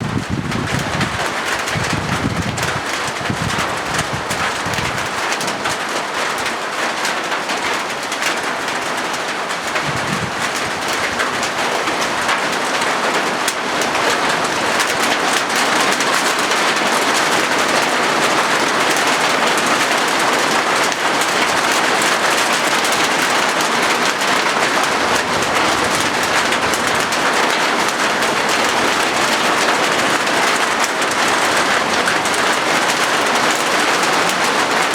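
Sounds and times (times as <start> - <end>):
rain on a metal roof: 0.0 - 34.9
low rumbles: 9.8 - 11.2.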